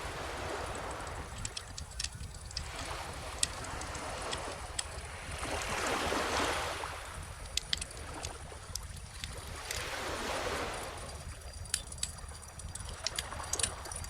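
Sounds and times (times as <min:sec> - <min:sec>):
ocean waves washing onto beach: 0:00.0 - 0:14.0
bonfire crackling and popping: 0:11.0 - 0:14.0.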